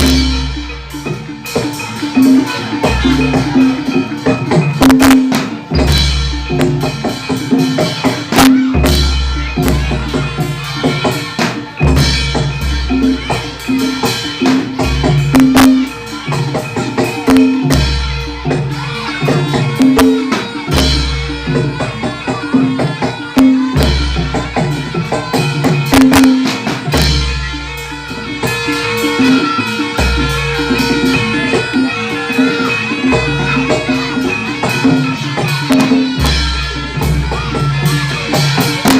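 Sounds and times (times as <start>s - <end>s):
drums and struck percussion: 0.0s - 38.9s.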